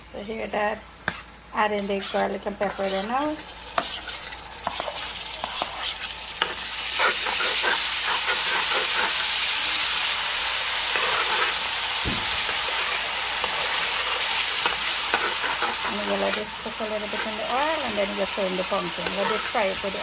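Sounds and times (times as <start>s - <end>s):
onions frying in hot oil: 0.0s - 20.0s
metal spoon scraping a pot: 1.1s - 9.3s, 12.5s - 17.5s, 18.9s - 19.8s.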